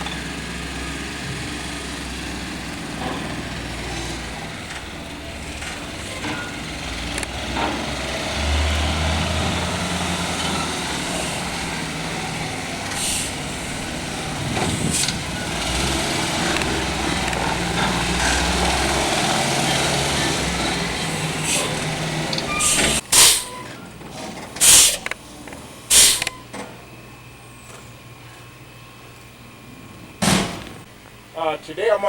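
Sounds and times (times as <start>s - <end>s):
diesel truck engine running: 0.0s - 32.0s
air hissing: 9.1s - 23.5s, 24.6s - 25.1s, 25.9s - 26.3s.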